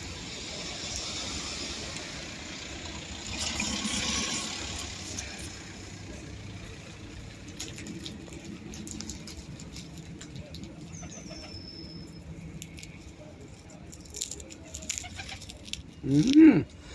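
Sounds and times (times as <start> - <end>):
vehicle passing: 0.0 - 11.0
vehicle engine running: 0.0 - 16.0.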